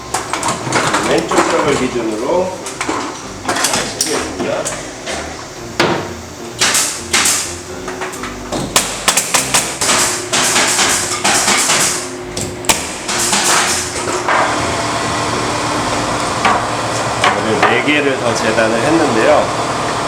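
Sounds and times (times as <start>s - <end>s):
nails hammered into wood: 5.8s - 7.5s, 8.6s - 14.4s.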